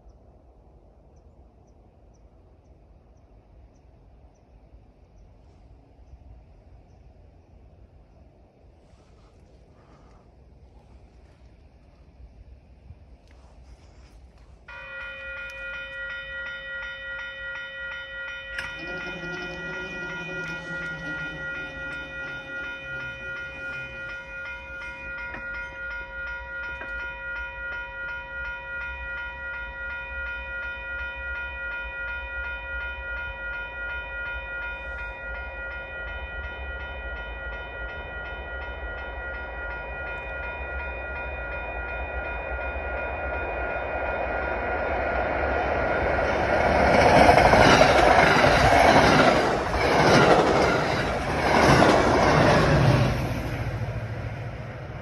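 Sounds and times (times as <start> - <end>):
train passing with wheel rush: 0.0 - 55.0
railroad crossing bell ringing: 14.4 - 55.0.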